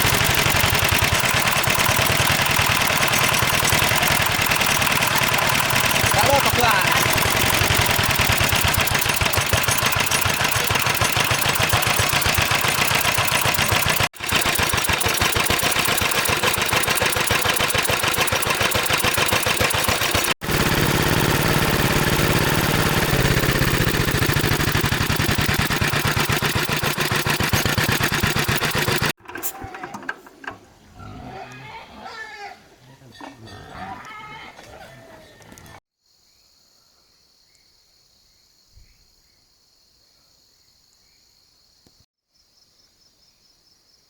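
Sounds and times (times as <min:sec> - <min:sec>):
diesel engine running: 0:00.0 - 0:29.2.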